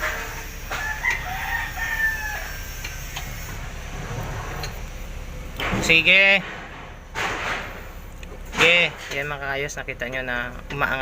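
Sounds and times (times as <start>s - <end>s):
rooster crowing: 0.7s - 3.2s.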